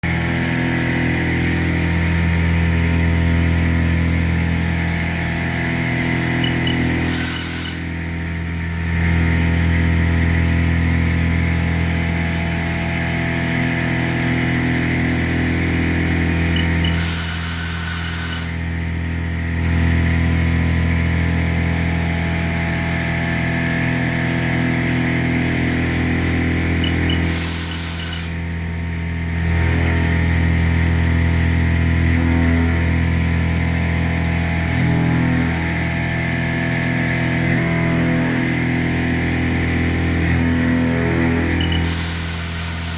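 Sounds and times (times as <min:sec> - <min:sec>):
milling machine hum: 0:02.6 - 0:32.7, 0:40.1 - 0:42.9
short hissing burst: 0:06.4 - 0:08.0, 0:16.6 - 0:18.6, 0:26.8 - 0:28.4, 0:41.6 - 0:42.9.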